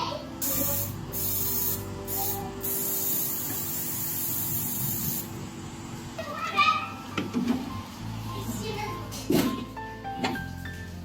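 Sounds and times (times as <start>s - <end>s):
compressed air hissing: 0.4s - 5.4s.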